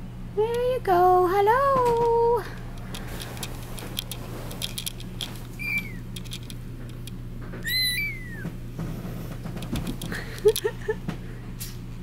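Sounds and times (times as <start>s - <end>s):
steady low hum: 0.0s - 12.0s
kittens mewing: 5.6s - 6.2s, 7.6s - 8.6s.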